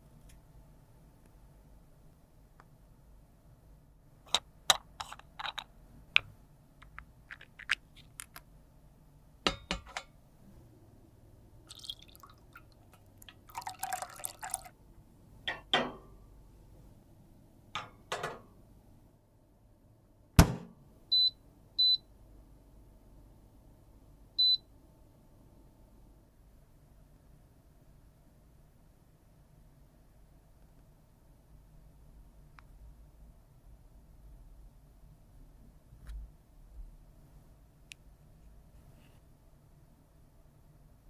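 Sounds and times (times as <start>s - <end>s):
cosmetic containers clicking: 6.8s - 8.5s
sharp knock: 20.4s - 20.7s.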